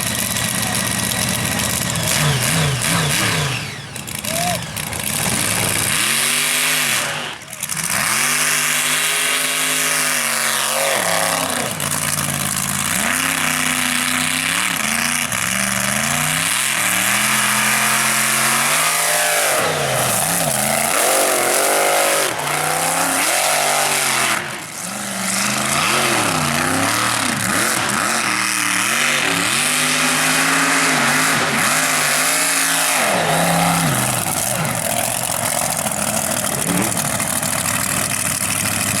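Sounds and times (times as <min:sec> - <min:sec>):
truck engine revving at full throttle: 0:00.0 - 0:39.0.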